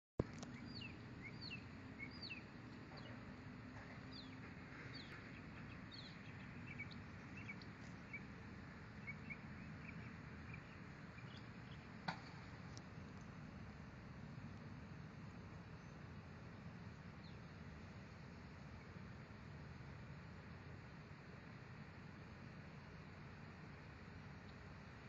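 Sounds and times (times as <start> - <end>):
songbird singing: 0.2 - 13.4, 15.0 - 19.4.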